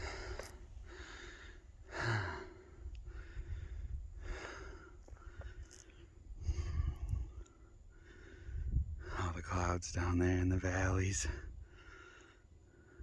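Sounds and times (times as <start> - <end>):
low microphone rumble: 0.0 - 7.4
person breathing hard: 0.0 - 9.2, 11.4 - 13.0.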